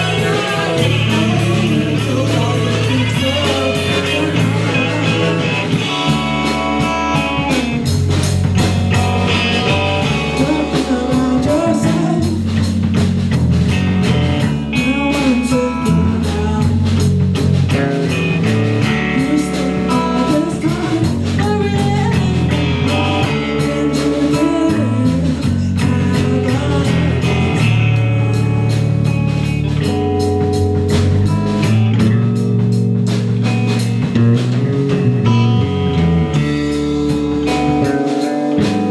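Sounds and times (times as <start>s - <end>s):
person singing: 0.0s - 8.0s, 8.9s - 12.8s, 14.6s - 17.1s, 18.8s - 30.0s
bass guitar: 0.0s - 38.9s
drums: 0.0s - 38.9s
electric guitar: 0.0s - 38.9s.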